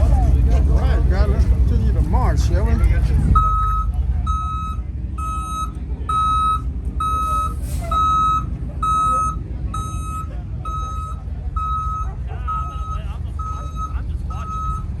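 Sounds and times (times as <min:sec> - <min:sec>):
low engine rumble: 0:00.0 - 0:15.0
reversing alarm beeping: 0:03.3 - 0:15.0.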